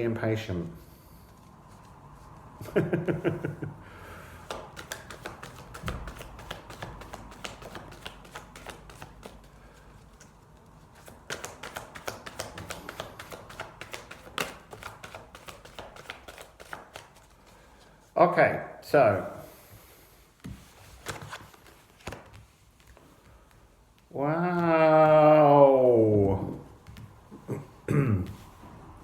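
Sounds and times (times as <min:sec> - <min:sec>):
cards being shuffled: 0:04.4 - 0:17.6, 0:20.4 - 0:25.2.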